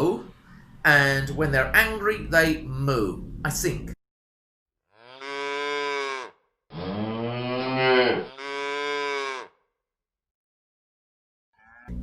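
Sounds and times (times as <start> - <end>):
cow mooing: 4.9 - 9.6.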